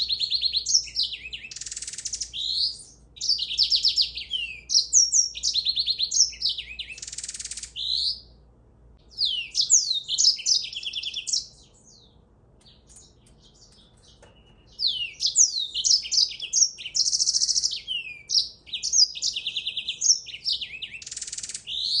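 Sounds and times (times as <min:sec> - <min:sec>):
songbird singing: 0:00.0 - 0:22.0.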